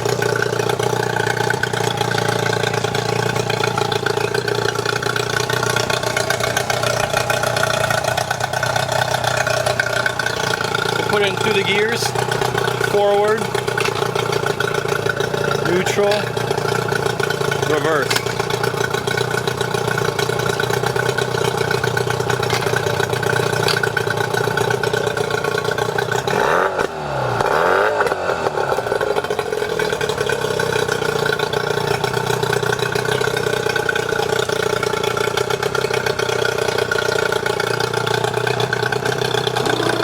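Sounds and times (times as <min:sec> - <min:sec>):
outboard motor running: 0:00.0 - 0:40.0.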